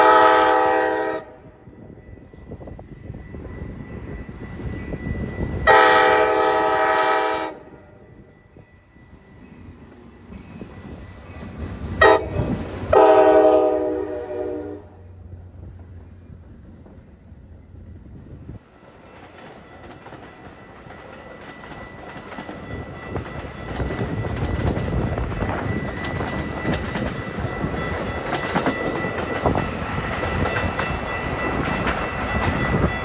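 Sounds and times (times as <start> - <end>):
locomotive air horn blasts: 0.0 - 1.5, 5.6 - 7.9, 12.0 - 15.0
low train rumble: 0.0 - 33.0.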